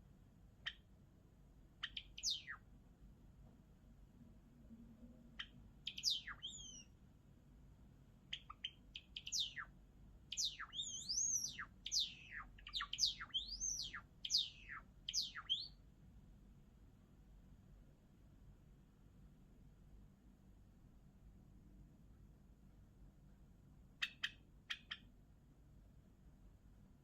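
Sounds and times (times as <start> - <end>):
sparrow singing chirps: 1.8 - 2.6, 5.4 - 6.9, 8.3 - 9.7, 10.3 - 15.8, 24.0 - 25.1.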